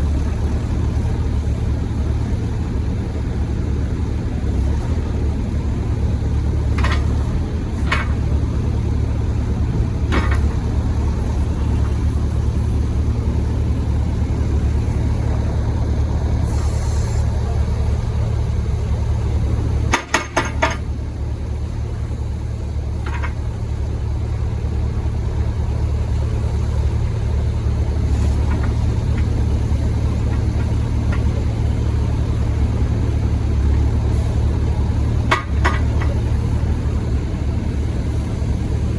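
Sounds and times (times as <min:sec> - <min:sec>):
diesel excavator engine running: 0:00.0 - 0:38.9
brief hiss: 0:16.4 - 0:17.4.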